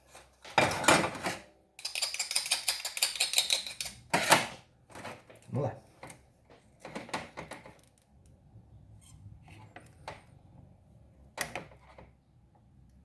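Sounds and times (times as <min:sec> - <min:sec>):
hand tools clicking and scraping: 0:01.2 - 0:05.2.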